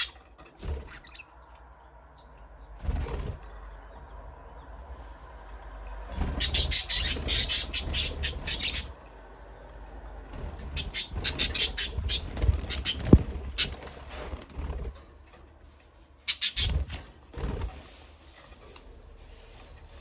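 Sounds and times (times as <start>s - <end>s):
budgerigars chirping: 6.2s - 8.9s, 10.6s - 13.8s, 16.3s - 16.8s.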